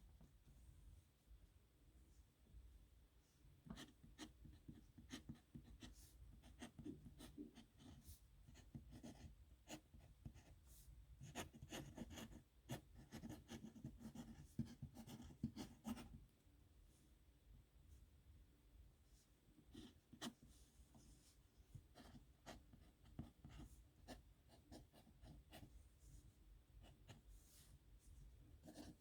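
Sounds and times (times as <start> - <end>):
pen scratching on paper: 3.8 - 10.5, 11.2 - 16.2, 28.6 - 29.0.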